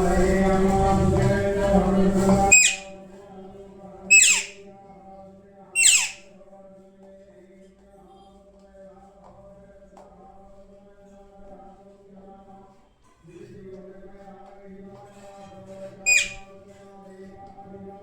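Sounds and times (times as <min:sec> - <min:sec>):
parrot screeching: 0:02.5 - 0:03.0, 0:04.1 - 0:04.6, 0:05.8 - 0:06.3, 0:16.1 - 0:16.5.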